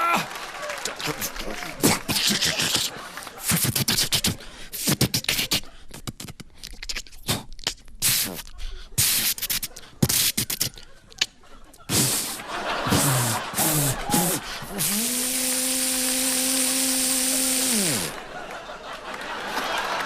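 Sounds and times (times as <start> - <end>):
mouth clicks: 0.8 - 18.2
mouth hissing bursts: 2.1 - 10.8, 11.9 - 18.2.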